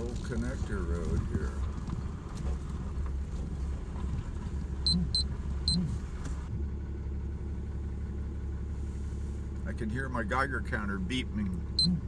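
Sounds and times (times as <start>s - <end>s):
truck rumble inside cab: 0.0s - 12.0s
geiger counter beeps: 4.9s - 5.9s.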